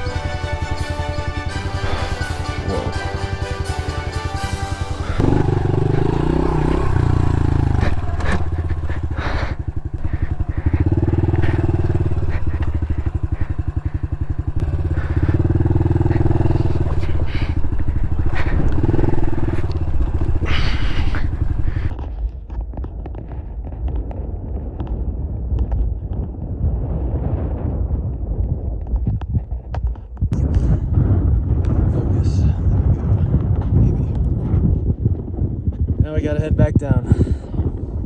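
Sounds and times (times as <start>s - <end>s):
small motorcycle engine revving: 0.0s - 21.9s.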